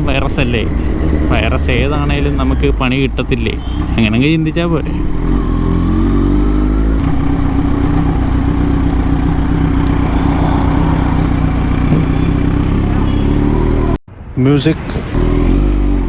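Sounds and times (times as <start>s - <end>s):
motorcycle engine running: 0.0s - 14.0s
rush of noise: 8.9s - 15.6s.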